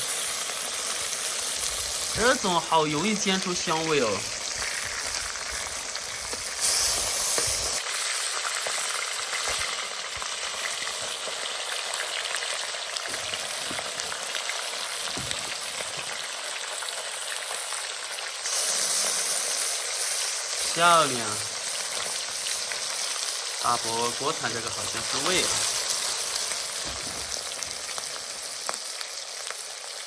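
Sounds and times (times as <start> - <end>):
fish sizzling in hot oil: 0.0 - 30.0
oil spitting: 3.4 - 16.4, 18.4 - 20.8.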